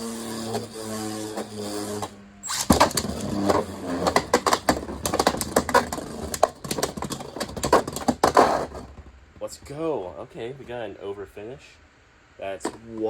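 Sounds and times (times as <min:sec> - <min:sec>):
spinning tops whirring: 0:00.0 - 0:08.8
buzzing hum: 0:00.0 - 0:09.4
plastic clacks: 0:02.6 - 0:09.1.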